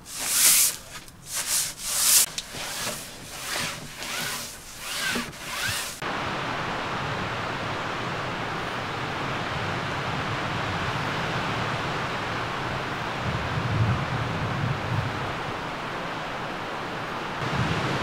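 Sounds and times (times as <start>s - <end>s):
rubbing and rustling strokes: 0.0s - 6.0s.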